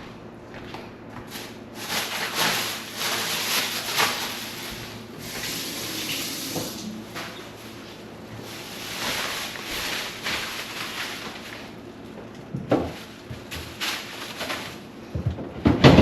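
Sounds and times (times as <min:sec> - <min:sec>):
water running into a sink: 0:05.2 - 0:07.0.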